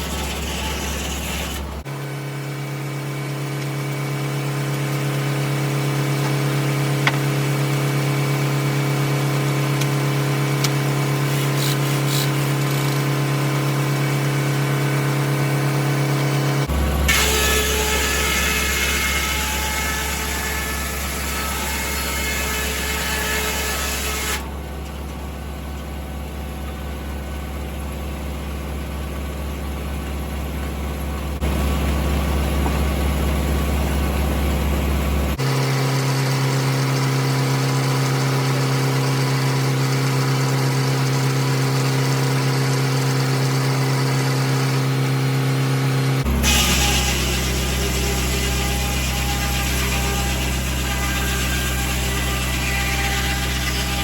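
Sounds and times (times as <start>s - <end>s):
tractor engine running: 24.5s - 35.4s.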